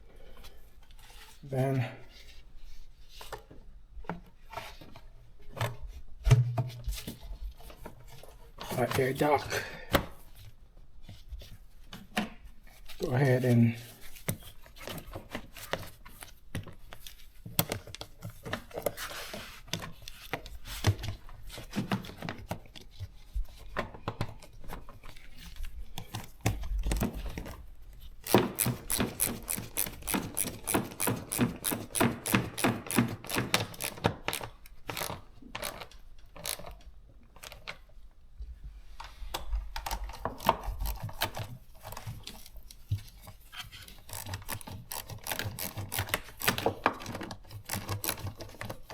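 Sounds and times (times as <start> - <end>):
plastic parts knocking and rubbing: 13.8 - 37.8, 39.0 - 48.9
rapid ratchet clicks: 28.3 - 34.4.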